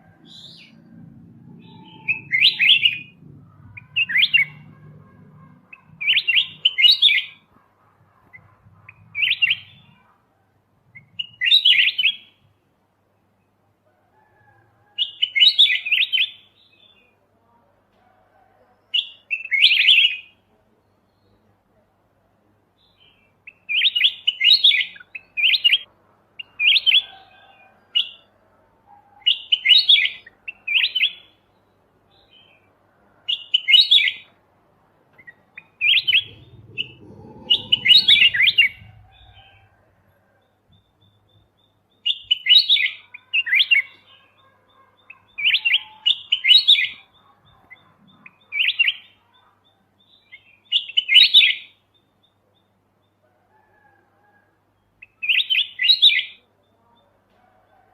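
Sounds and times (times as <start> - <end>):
bird chirping phrases: 1.6 - 7.6, 18.9 - 21.8, 35.2 - 39.7, 40.7 - 52.8.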